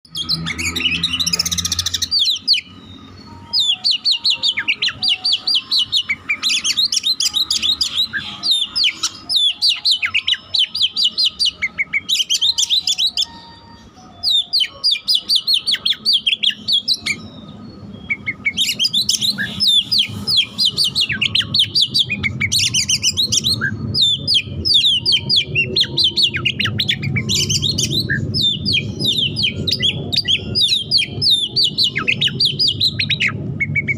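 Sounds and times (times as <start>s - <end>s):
magpie-robin singing trills: 0.1s - 33.9s.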